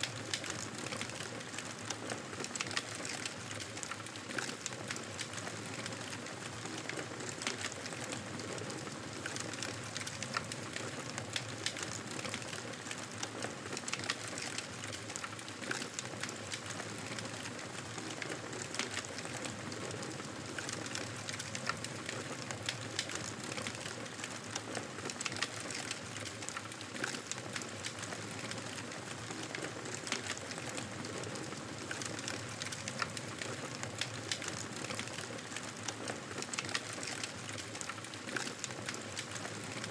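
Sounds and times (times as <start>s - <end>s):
campfire crackling: 9.2s - 12.9s, 13.8s - 39.9s.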